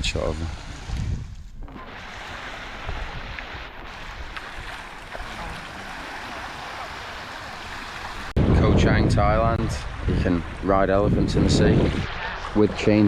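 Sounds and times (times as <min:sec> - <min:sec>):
surf washing: 0:00.0 - 0:13.0
wind on microphone: 0:00.0 - 0:13.0.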